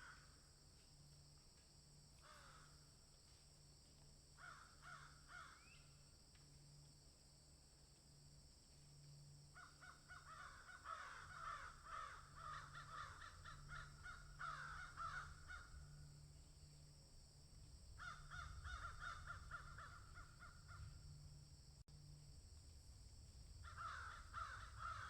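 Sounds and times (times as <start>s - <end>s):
birds harsh repeated calls: 9.8s - 15.9s, 18.0s - 20.9s, 23.7s - 25.0s.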